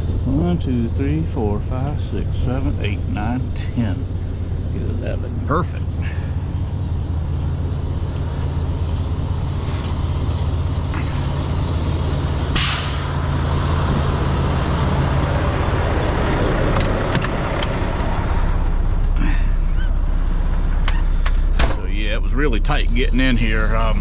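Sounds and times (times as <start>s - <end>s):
diesel truck engine idling: 0.0s - 24.0s
air brake hiss: 12.5s - 13.2s.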